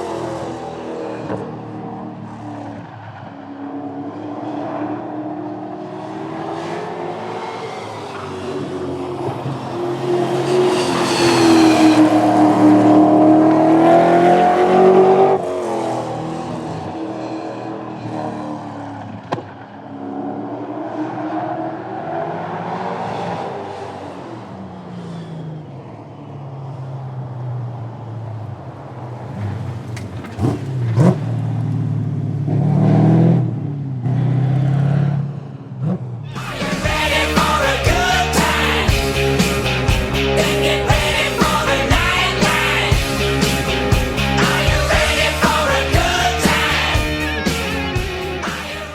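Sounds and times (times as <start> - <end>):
engine revving: 0.0 - 1.7, 4.0 - 19.4, 35.8 - 48.9
racing car accelerating: 0.0 - 48.9.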